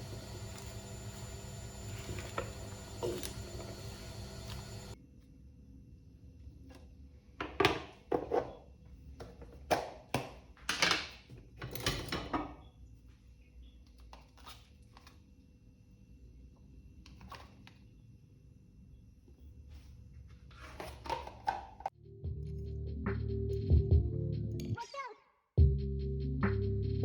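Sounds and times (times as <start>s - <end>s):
objects knocking and tapping: 0.1s - 4.9s.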